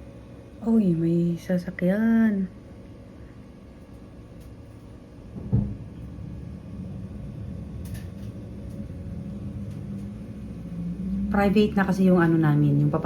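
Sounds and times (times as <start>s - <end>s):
thump: 5.4s - 5.8s
vehicle engine rumbling: 5.4s - 13.0s.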